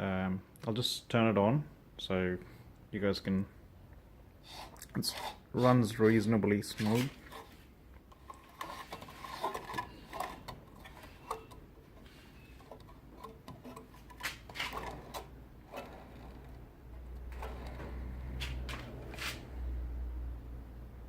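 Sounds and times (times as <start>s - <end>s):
bench grinder humming: 8.5s - 19.6s.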